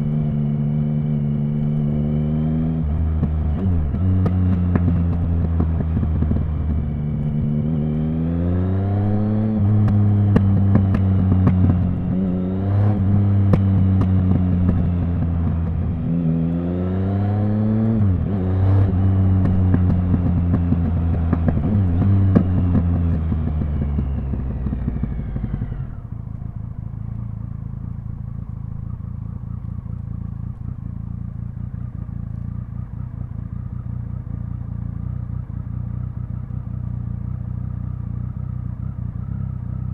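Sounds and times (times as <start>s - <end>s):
motorcycle accelerating through gears: 0.0s - 39.9s
motorcycle engine idling: 2.8s - 8.0s, 13.4s - 16.2s, 19.2s - 39.9s.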